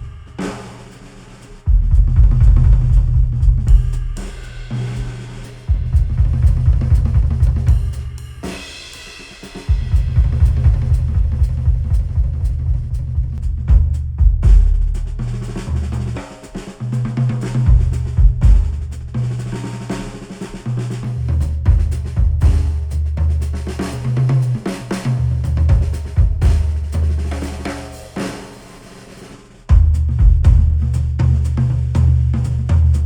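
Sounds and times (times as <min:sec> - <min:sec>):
drum kit: 0:00.0 - 0:33.0
heavy bass line: 0:01.6 - 0:08.4, 0:09.7 - 0:16.2, 0:17.6 - 0:19.4, 0:29.7 - 0:33.0.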